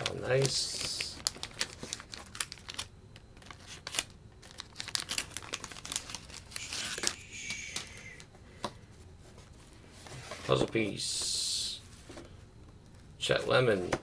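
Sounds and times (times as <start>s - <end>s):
wax paper wrapper crinkling: 0.0s - 8.2s.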